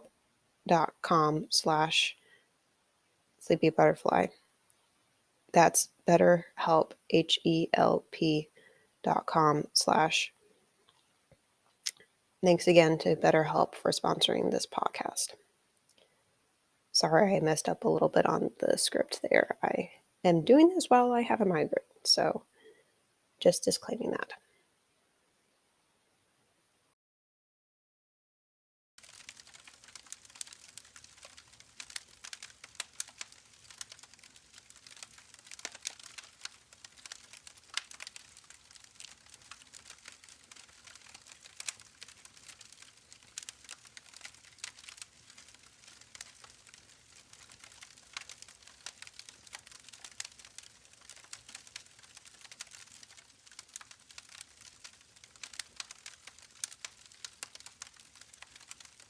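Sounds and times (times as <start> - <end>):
campfire crackling: 29.0 - 59.0.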